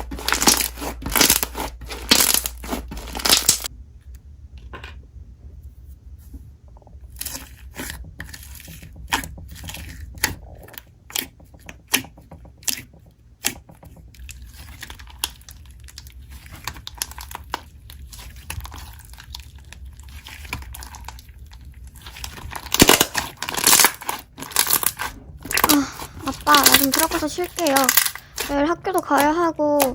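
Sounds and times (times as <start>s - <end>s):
slime soft crackling: 14.3s - 29.9s.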